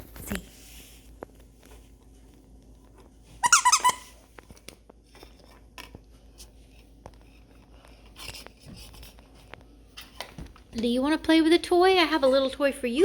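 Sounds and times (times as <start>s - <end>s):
squeaky dog toy squeaking: 3.4s - 4.2s.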